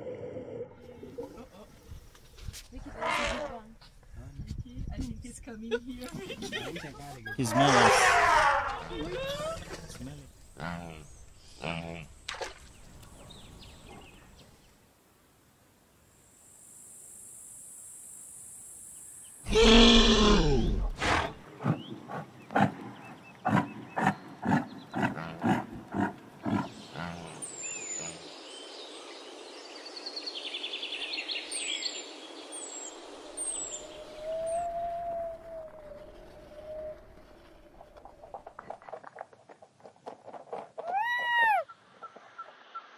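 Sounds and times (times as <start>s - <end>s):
small birds chirping: 10.0s - 14.8s, 21.4s - 34.8s
steady hiss: 14.4s - 19.4s.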